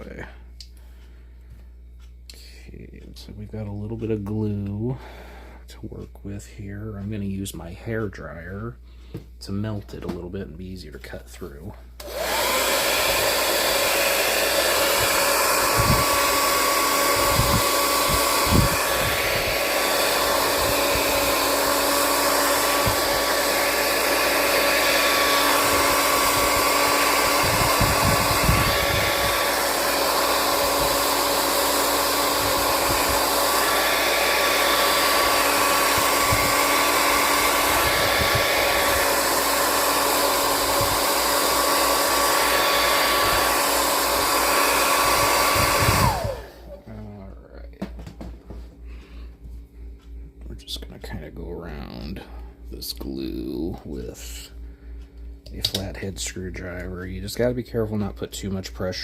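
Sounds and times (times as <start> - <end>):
hair dryer running: 12.0 - 47.2.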